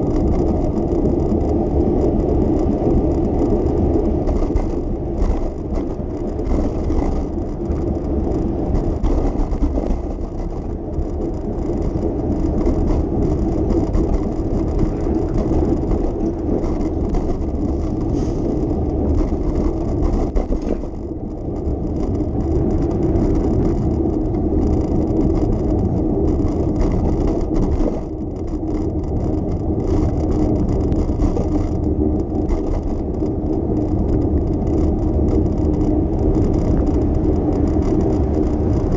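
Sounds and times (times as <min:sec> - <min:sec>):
city traffic passing: 0:00.0 - 0:28.3
bicycle tyres rolling on road: 0:00.0 - 0:38.9.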